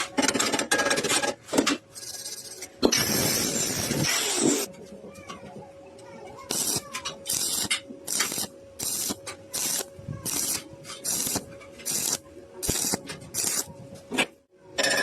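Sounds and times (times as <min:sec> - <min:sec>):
arc welding sizzling bursts: 0:02.0 - 0:04.7, 0:06.5 - 0:13.7.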